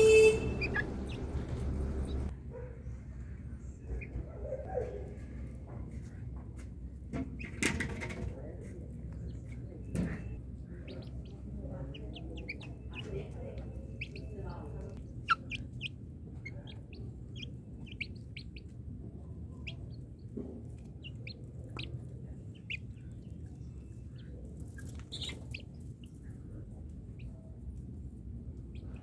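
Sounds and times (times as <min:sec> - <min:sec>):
chicks peeping: 0:00.0 - 0:02.3, 0:09.1 - 0:18.8, 0:19.4 - 0:27.4.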